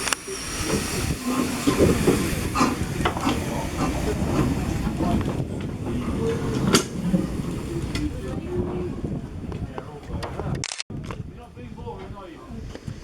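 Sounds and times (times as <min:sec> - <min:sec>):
steam hissing: 0:00.0 - 0:08.4
steam locomotive rumbling: 0:00.0 - 0:13.0.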